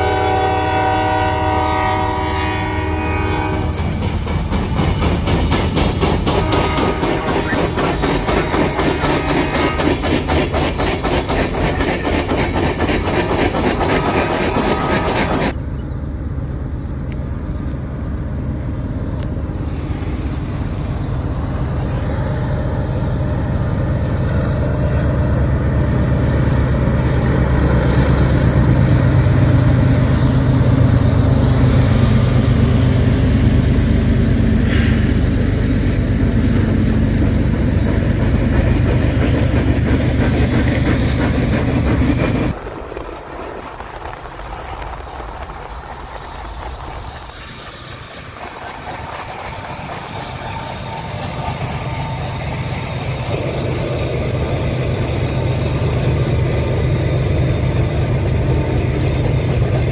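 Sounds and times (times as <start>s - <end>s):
diesel locomotives rumbling: 0.0s - 59.9s
train wheels clattering over rail: 3.4s - 15.6s, 25.4s - 59.9s.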